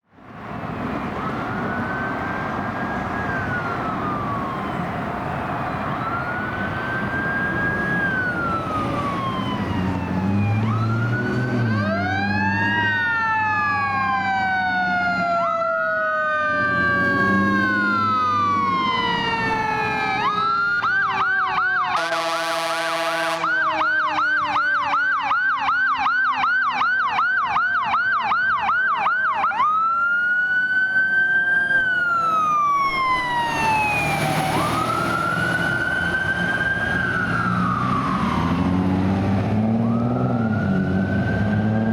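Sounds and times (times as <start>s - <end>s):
mechanical siren winding down: 1.2s - 22.2s, 29.0s - 41.9s
electronic siren wailing and yelping: 1.2s - 41.9s
air horn blasts: 21.9s - 23.7s.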